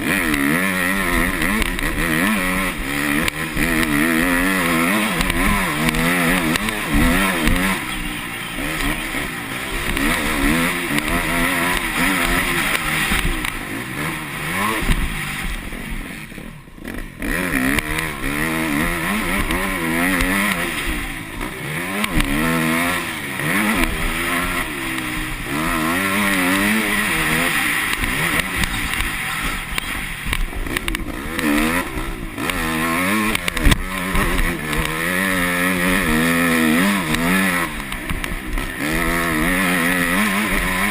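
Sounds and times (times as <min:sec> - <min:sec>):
motocross engine revving: 0:00.0 - 0:40.9.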